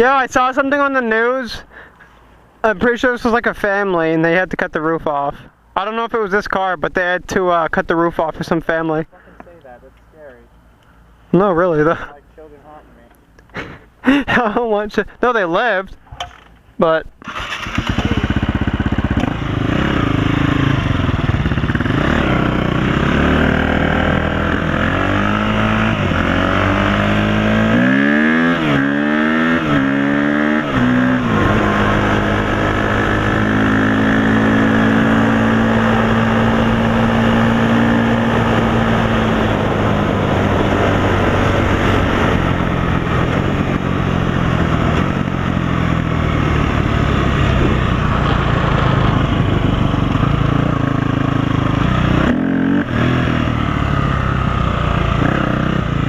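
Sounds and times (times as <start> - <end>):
off-road vehicle engine revving: 17.3 - 56.0.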